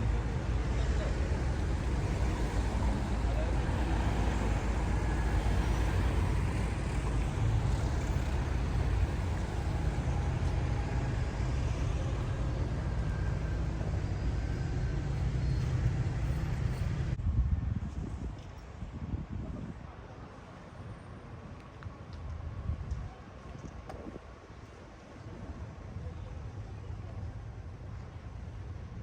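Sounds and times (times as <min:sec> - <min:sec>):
cars passing with low rumble: 0:00.0 - 0:23.2.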